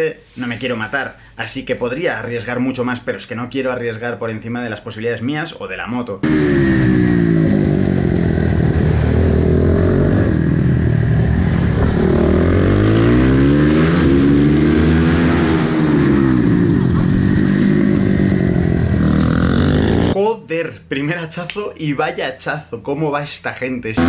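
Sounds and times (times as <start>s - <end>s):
motorcycle engine racing: 6.2s - 20.2s.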